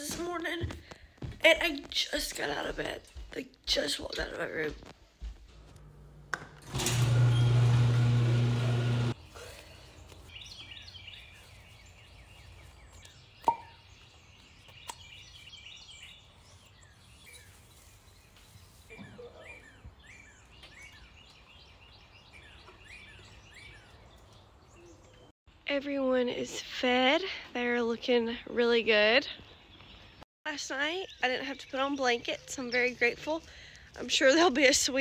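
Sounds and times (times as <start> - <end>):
door-opener motor humming: 5.7 - 9.2
birds chirping: 9.2 - 25.6, 28.0 - 35.0.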